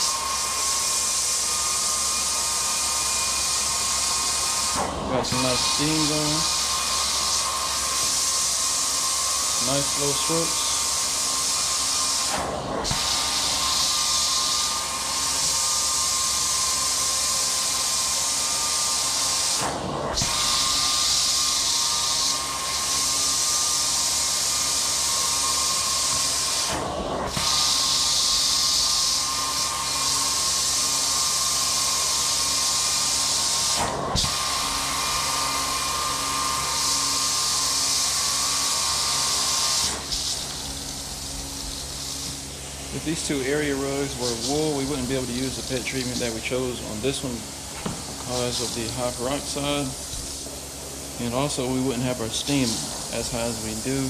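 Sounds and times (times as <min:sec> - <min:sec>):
machine hum: 0:00.0 - 0:54.0
water spraying hiss: 0:03.9 - 0:12.3.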